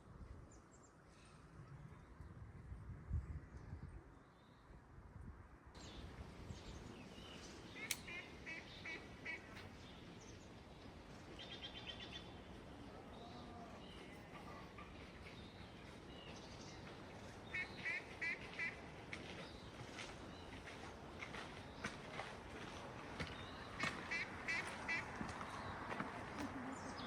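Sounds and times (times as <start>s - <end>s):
outdoor background hiss: 5.8s - 20.0s
ducks quacking: 7.8s - 9.6s, 17.5s - 18.8s, 23.7s - 25.3s.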